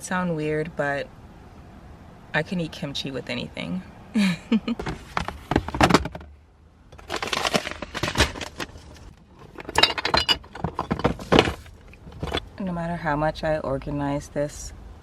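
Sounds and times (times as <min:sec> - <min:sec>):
rummaging through containers and jars: 0:04.8 - 0:06.3, 0:06.9 - 0:12.6.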